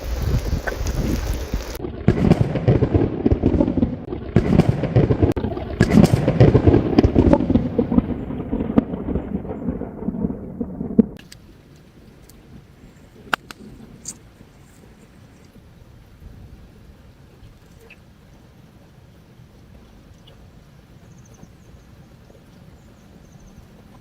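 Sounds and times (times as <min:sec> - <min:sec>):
campfire crackling and popping: 0:00.0 - 0:14.5
low rumble of fire: 0:00.0 - 0:24.0.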